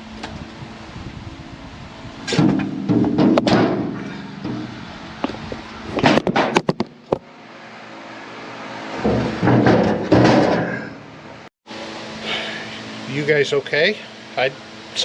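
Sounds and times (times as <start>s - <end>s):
sharp metal impacts: 2.2s - 7.3s, 8.9s - 11.4s
metal plate clanking: 2.3s - 6.9s, 9.0s - 11.2s
metal scraping clatter: 2.3s - 6.9s, 8.9s - 11.1s.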